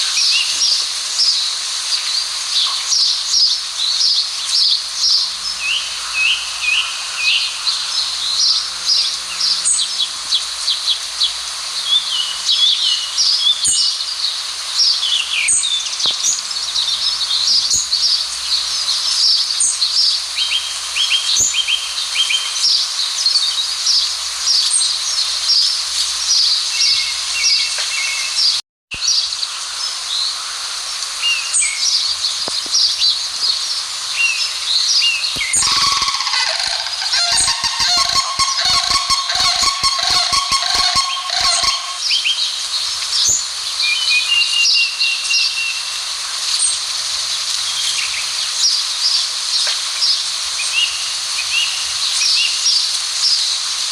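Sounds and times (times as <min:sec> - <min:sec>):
steady outdoor hiss: 0:00.0 - 0:53.9
small birds chirping: 0:34.3 - 0:42.2.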